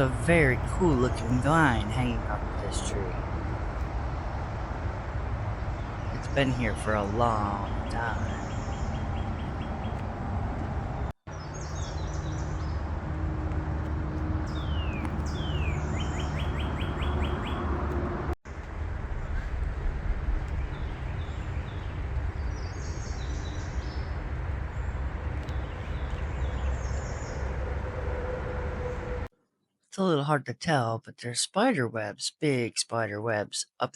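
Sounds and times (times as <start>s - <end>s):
songbirds singing: 0.0s - 13.0s, 14.2s - 18.0s, 19.1s - 28.0s
steady low rumble: 0.0s - 29.3s.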